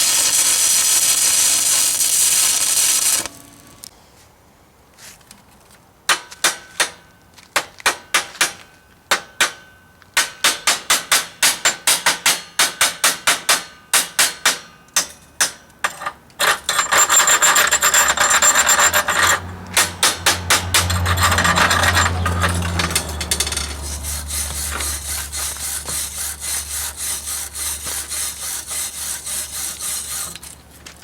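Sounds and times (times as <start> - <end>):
hammer striking metal: 6.1 - 16.8, 18.5 - 25.0
steady scraping on metal: 15.5 - 31.0.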